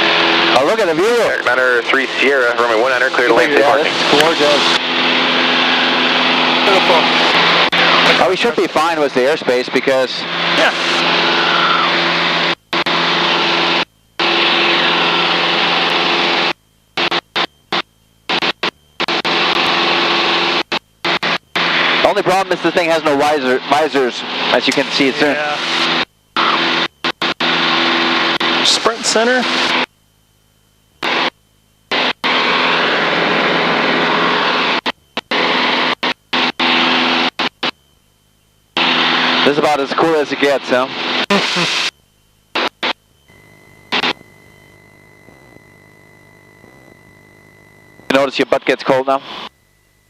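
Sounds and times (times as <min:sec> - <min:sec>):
aircraft engine and propeller drone: 0:00.0 - 0:50.0
faint steady tone: 0:12.5 - 0:50.0.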